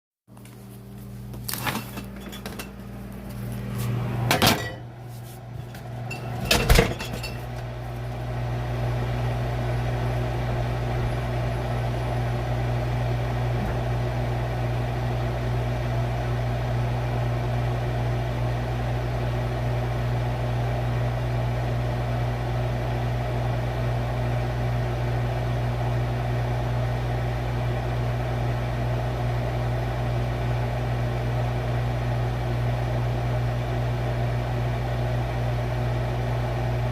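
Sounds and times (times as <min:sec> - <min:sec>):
refrigerator low hum: 0:00.3 - 0:36.9
refrigerator door knocking shut: 0:06.4 - 0:07.1.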